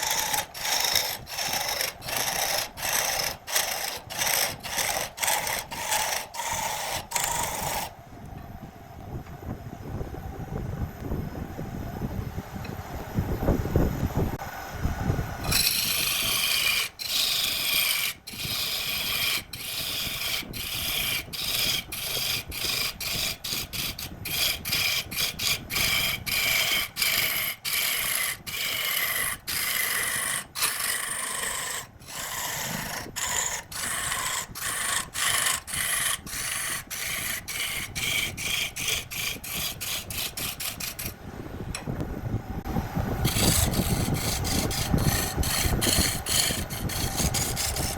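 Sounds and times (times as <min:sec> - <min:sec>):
tool rasping on spinning wood: 0:00.0 - 0:08.0, 0:15.4 - 0:41.2, 0:43.2 - 0:47.9
faint high lathe whine: 0:00.0 - 0:47.9.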